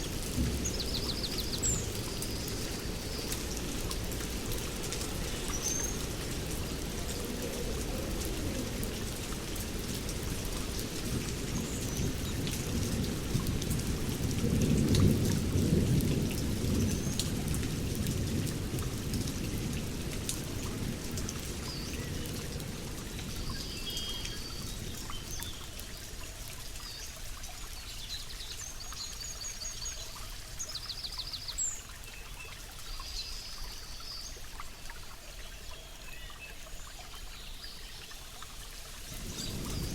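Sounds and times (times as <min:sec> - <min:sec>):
low rumble of thunder: 0:00.0 - 0:23.7, 0:39.0 - 0:39.9
steady rain falling: 0:00.0 - 0:39.9.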